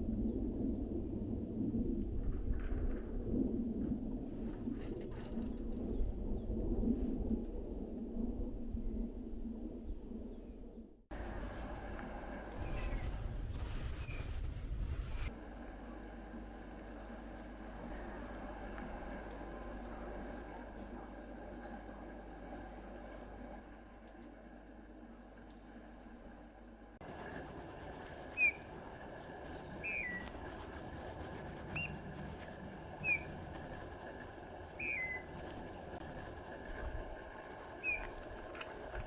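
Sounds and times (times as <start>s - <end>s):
soft whistled bird notes: 11.2s - 15.3s, 27.9s - 36.0s, 37.8s - 39.0s.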